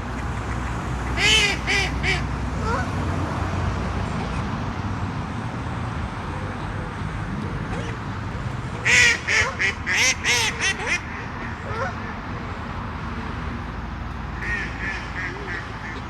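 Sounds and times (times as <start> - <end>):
duck quacking: 0.1 - 2.8, 8.8 - 12.1, 14.4 - 16.0.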